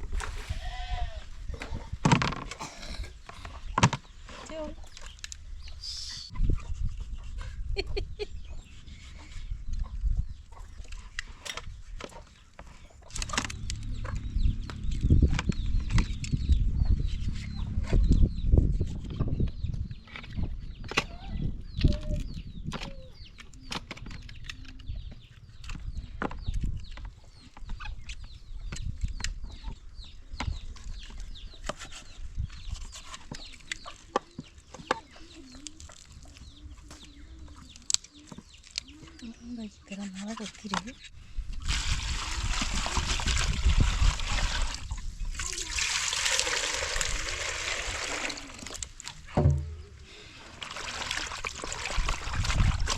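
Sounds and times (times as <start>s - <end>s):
low rumbling noise: 13.1s - 19.9s
clicks and knocks: 49.3s - 50.0s.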